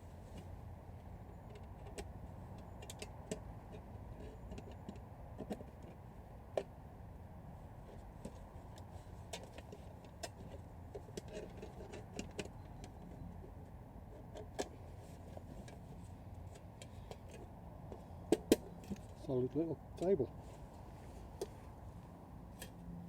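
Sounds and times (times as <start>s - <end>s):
camp gear clicks and knocks: 0.2s - 6.7s, 7.9s - 13.3s, 14.1s - 19.3s.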